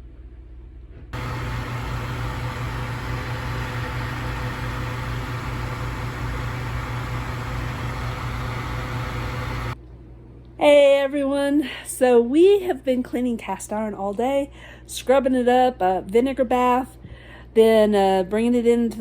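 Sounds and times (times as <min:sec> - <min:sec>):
machine hum and hiss: 0:01.2 - 0:09.8.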